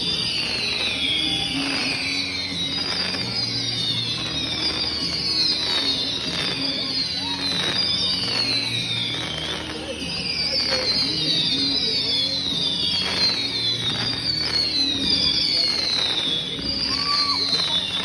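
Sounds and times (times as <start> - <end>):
firework pops and crackles: 0.0 - 18.0
firework whistles: 0.0 - 18.0.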